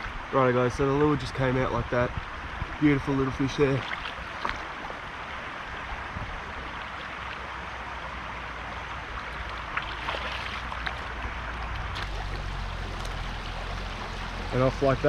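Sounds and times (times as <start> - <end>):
creek water rushing: 0.0 - 15.0
light splashes: 3.6 - 5.4, 9.0 - 15.0.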